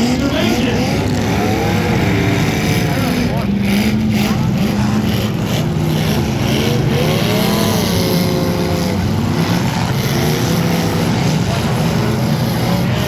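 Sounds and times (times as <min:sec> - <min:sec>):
car engine revving: 0:00.0 - 0:13.0
car engines running loudly: 0:00.0 - 0:13.0.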